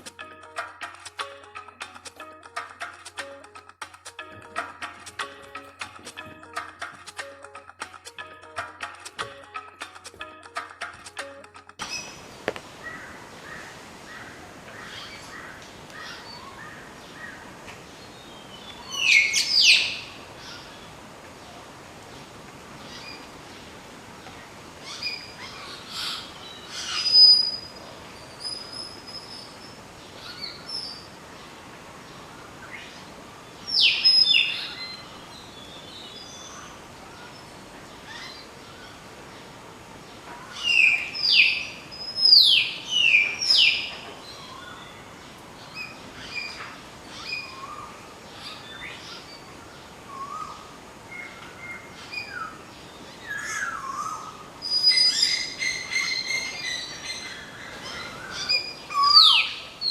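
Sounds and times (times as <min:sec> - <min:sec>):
birds calling: 0:00.0 - 0:59.9
downward-sweeping bird whistles: 0:50.1 - 0:52.6, 0:53.3 - 0:57.4.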